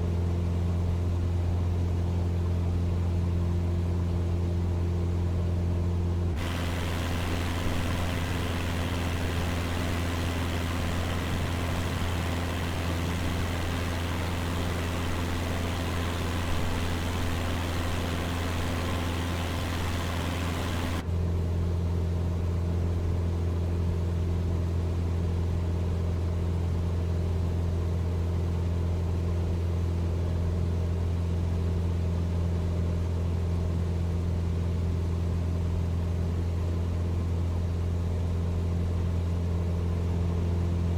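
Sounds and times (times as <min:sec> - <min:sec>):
loud even hiss: 0:06.4 - 0:21.0
propeller engine droning: 0:06.4 - 0:21.0.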